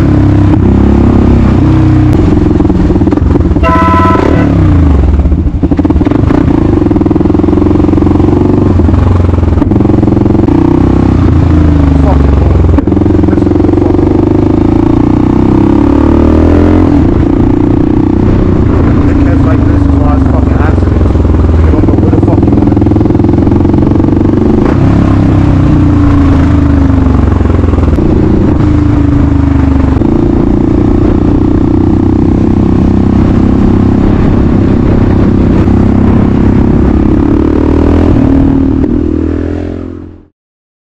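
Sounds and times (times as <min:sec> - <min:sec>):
motorcycle engine running: 0:00.0 - 0:40.3.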